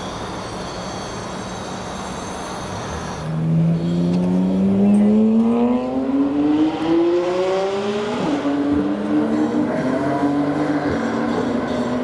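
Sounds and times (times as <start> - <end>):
car engine accelerating: 3.3 - 12.0.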